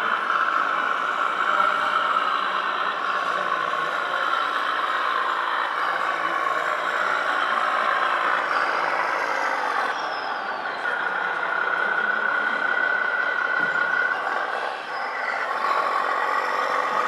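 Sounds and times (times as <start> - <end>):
model truck motor whine: 0.0 - 17.0.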